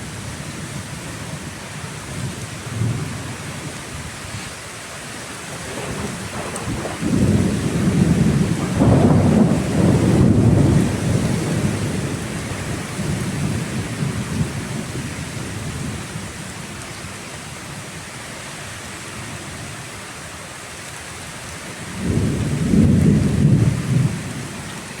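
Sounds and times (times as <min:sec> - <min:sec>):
steady rain: 0:00.0 - 0:25.0
thunder rumbling: 0:05.5 - 0:16.3, 0:21.9 - 0:25.0.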